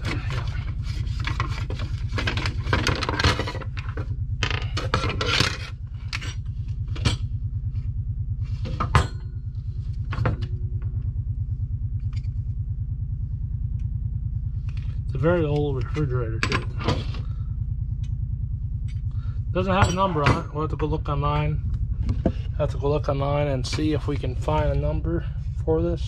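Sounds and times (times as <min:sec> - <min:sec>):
plastic parts clicking and scraping: 0:00.0 - 0:06.3
low pulsing mechanical drone: 0:00.0 - 0:26.0.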